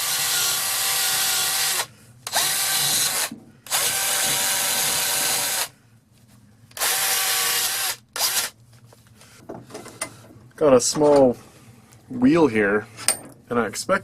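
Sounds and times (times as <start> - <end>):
electric drill motor whine: 0.0 - 5.7, 6.8 - 8.5.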